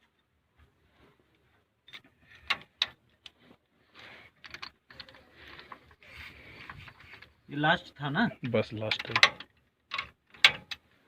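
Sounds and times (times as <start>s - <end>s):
sharp metal clicks: 8.9s - 10.8s.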